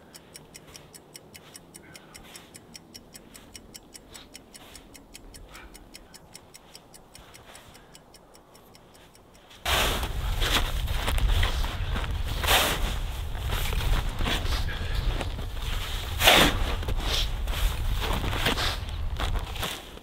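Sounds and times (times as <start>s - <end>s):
clock ticking: 0.0s - 9.7s.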